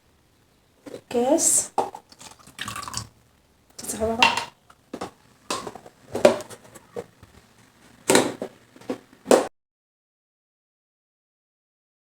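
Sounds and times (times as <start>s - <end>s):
kitchen containers clattering: 0.8s - 3.1s, 3.8s - 7.1s.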